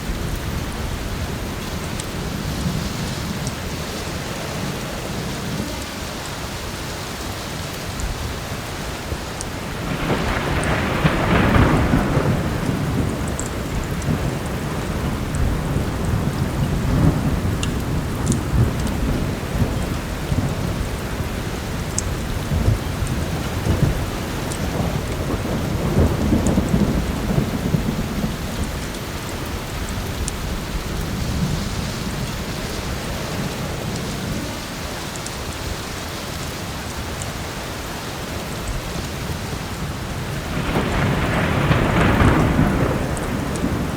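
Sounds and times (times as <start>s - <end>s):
heavy rain: 0.0s - 43.9s
low thunder rumbling: 8.0s - 35.0s, 38.7s - 43.9s.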